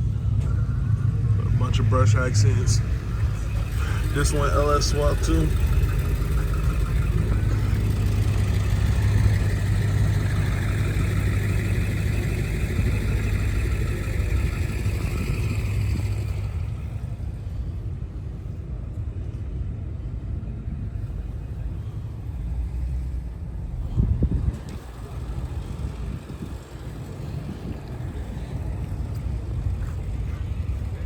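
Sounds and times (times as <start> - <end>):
vehicle engine rumbling: 0.0 - 31.0.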